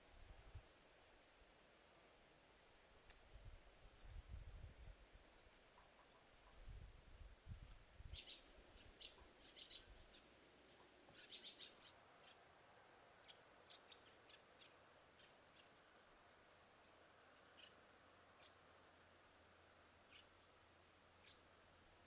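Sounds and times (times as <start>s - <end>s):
faint bird chirps: 1.4s - 1.8s, 3.0s - 3.5s, 5.2s - 6.8s, 8.0s - 12.5s, 13.1s - 15.9s, 16.8s - 18.7s, 20.0s - 21.6s.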